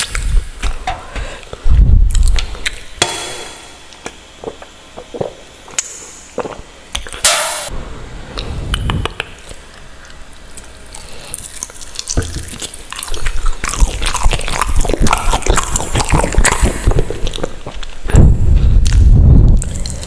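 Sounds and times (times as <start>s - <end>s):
mouth chewing noodles: 3.9s - 7.3s, 9.4s - 20.0s.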